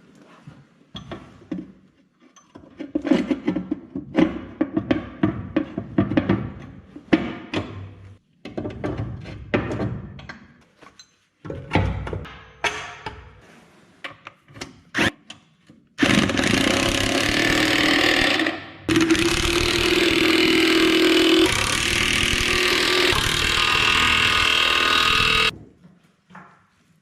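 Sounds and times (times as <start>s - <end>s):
power tool on metal: 16.0s - 25.5s.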